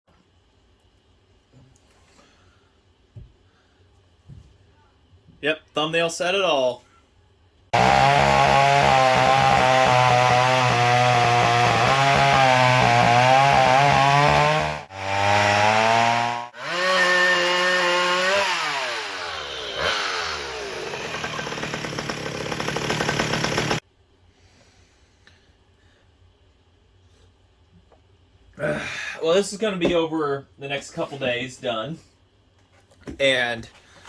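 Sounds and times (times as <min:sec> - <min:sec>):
chainsaw engine running: 0:07.8 - 0:23.8.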